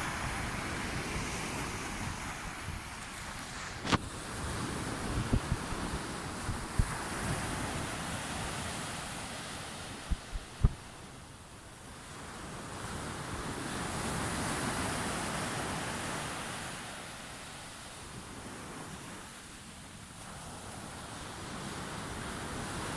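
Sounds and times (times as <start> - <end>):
wind buffeting microphone: 0.0 - 11.2
sea waves washing in: 0.0 - 22.9.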